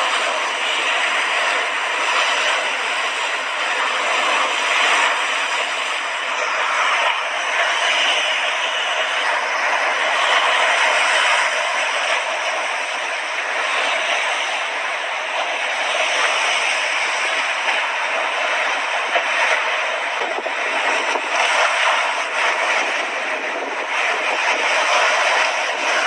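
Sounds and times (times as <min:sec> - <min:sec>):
sea waves washing onto shore: 0:00.0 - 0:26.0.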